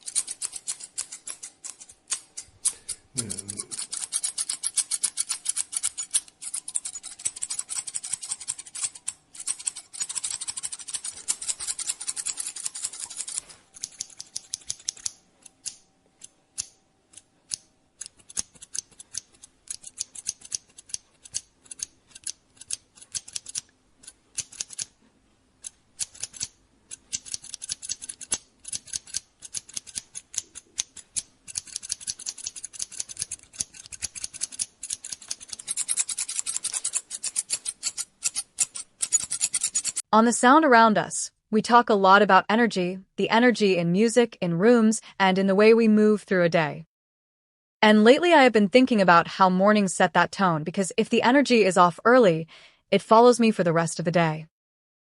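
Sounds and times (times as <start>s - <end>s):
scissors snipping hair: 0.0s - 25.0s, 25.6s - 40.1s.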